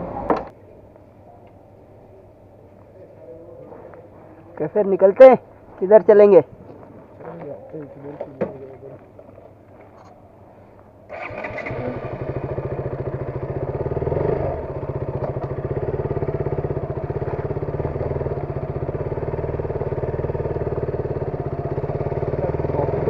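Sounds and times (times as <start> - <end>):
motorcycle engine running: 11.1 - 23.0.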